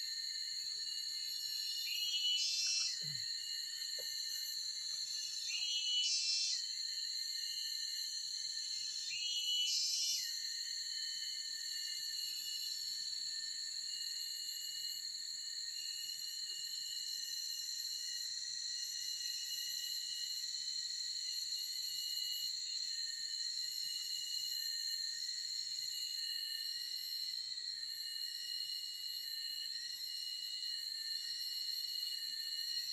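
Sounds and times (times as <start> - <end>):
insects trilling: 0.0 - 32.9.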